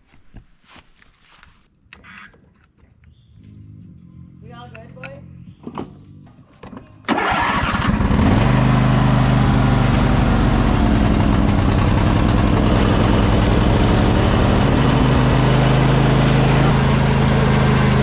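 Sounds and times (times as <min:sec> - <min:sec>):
riding mower engine starting: 0:07.1 - 0:18.0.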